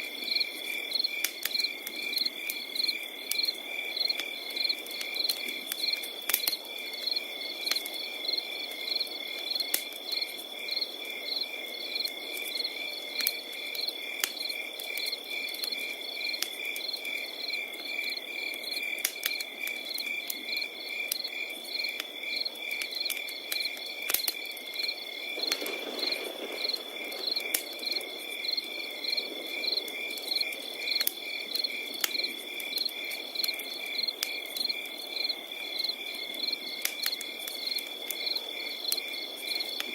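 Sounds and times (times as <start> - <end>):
crickets chirping: 0.0 - 39.9
wood fire crackling: 0.0 - 39.9.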